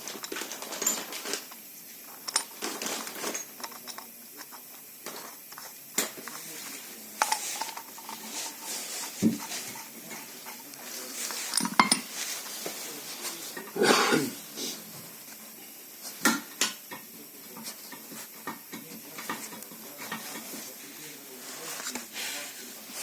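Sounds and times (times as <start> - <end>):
metal tools clinking: 0.1 - 4.1, 7.1 - 12.3.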